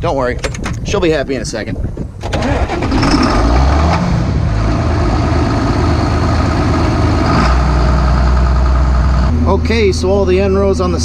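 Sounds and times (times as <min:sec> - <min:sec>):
tractor diesel engine running: 0:02.2 - 0:11.0.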